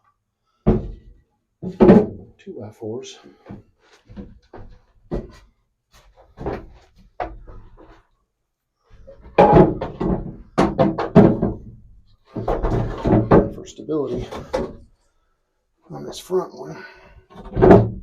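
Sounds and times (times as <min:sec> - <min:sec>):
wooden boards knocking: 0:00.6 - 0:02.3, 0:09.2 - 0:14.8, 0:17.4 - 0:18.0.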